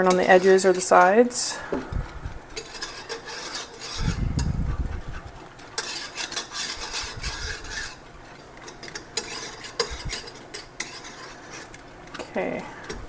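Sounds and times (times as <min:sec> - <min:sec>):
whisk clinking against pot: 0:00.0 - 0:01.2, 0:02.5 - 0:04.2, 0:05.6 - 0:11.9
whisk scraping a saucepan: 0:00.0 - 0:12.2.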